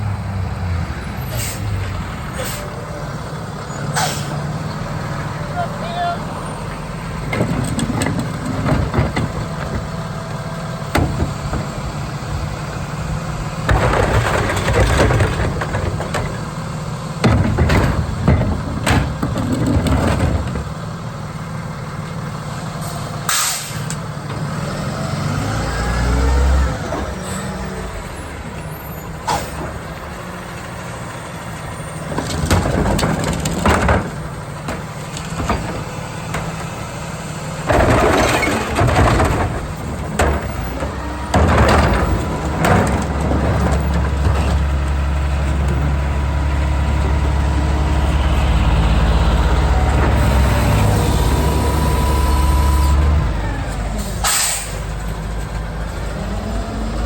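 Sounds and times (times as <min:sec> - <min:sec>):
diesel truck engine running: 0:00.0 - 0:57.0
air brake hisses: 0:03.9 - 0:04.4, 0:22.9 - 0:24.0, 0:54.2 - 0:54.9.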